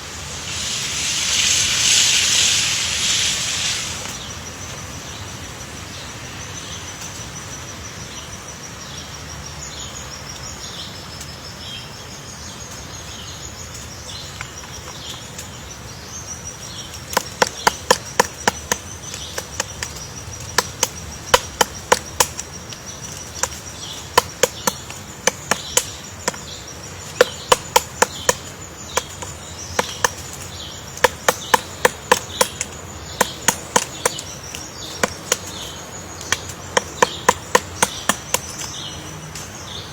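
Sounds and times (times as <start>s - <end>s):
woodpecker pecking wood: 0.0s - 4.2s, 16.9s - 39.0s
high-pitched insect buzz: 0.0s - 4.4s.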